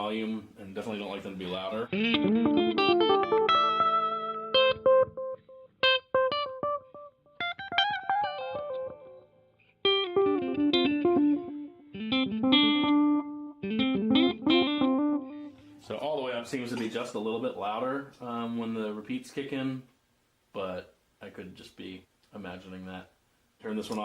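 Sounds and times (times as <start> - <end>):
electric guitar with delay echoes: 1.9 - 15.8.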